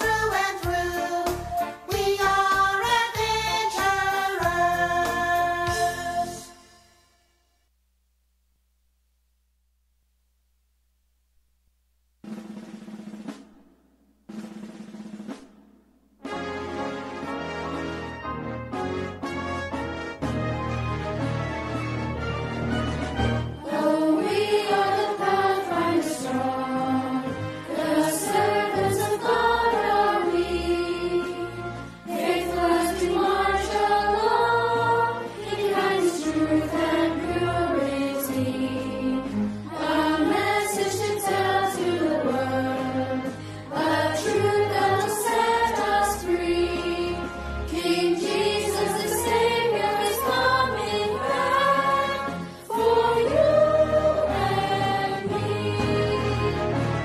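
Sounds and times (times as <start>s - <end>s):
group of voices singing: 0.0s - 6.6s, 23.6s - 57.0s
bass accompaniment: 0.0s - 6.7s, 16.2s - 23.6s, 24.3s - 57.0s.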